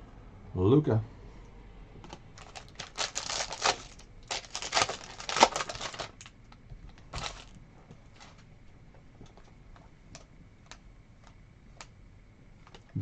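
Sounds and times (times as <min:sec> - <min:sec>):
trading cards clicking and rustling: 0:02.1 - 0:08.5.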